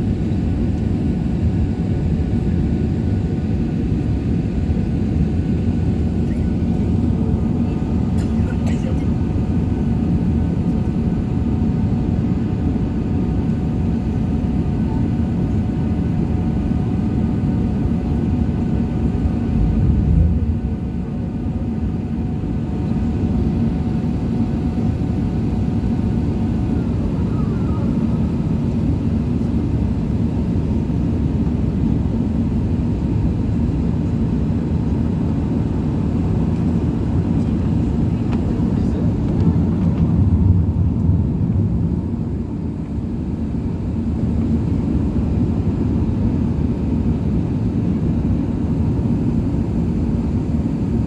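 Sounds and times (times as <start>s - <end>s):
aircraft cabin engine drone: 0.0s - 51.0s
low rumble: 19.0s - 22.3s, 38.7s - 43.4s.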